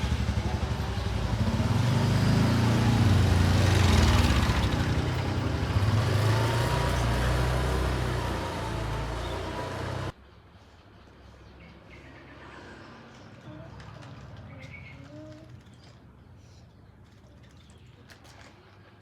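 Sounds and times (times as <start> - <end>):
vehicle engine running: 0.0 - 10.2.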